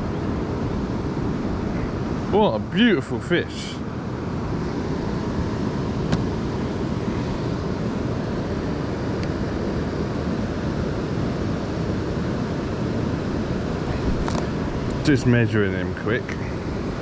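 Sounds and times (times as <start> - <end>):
flowing river water: 0.0 - 17.0
wind on microphone: 4.2 - 15.2.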